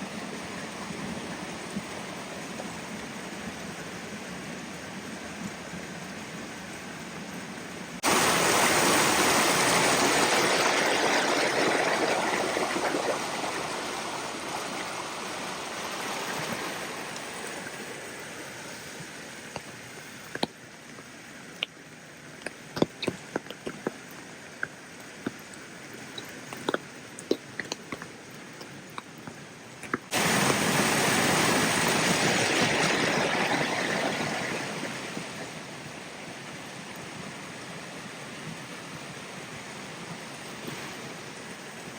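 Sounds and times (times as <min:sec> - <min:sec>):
rain and running water: 0:00.0 - 0:41.9
water drips and taps: 0:22.4 - 0:30.6.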